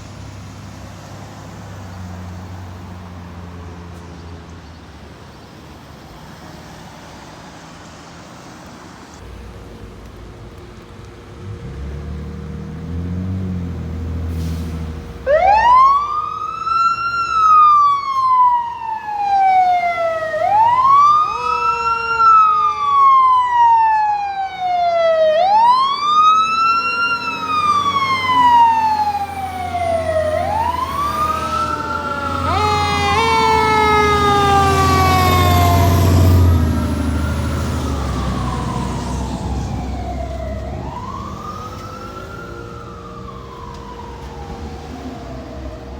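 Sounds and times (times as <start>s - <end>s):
fire truck engine rumbling: 0.0s - 45.9s
fast sweeping siren tone: 15.2s - 45.6s
siren wailing: 15.2s - 45.9s.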